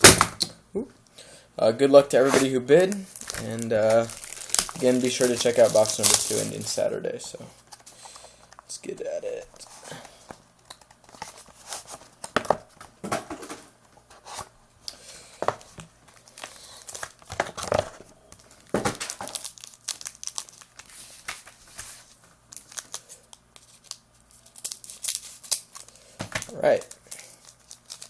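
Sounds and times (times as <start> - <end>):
plastic wrapping crinkling: 2.1 - 6.9, 15.7 - 28.0
plastic ripping: 2.2 - 6.8, 18.4 - 21.8, 23.6 - 28.0.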